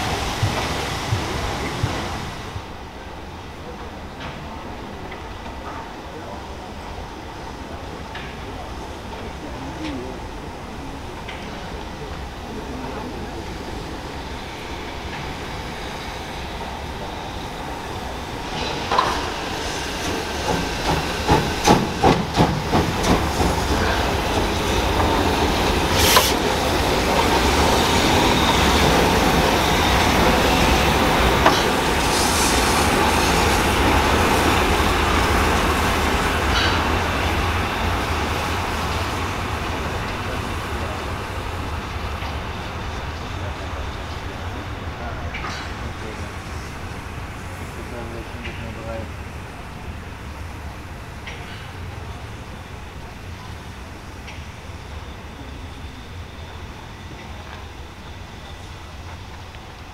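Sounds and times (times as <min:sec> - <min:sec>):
train rolling rumble: 0:00.0 - 0:59.9
train wheel clacks over rail joints: 0:18.4 - 0:30.4, 0:31.1 - 0:32.4.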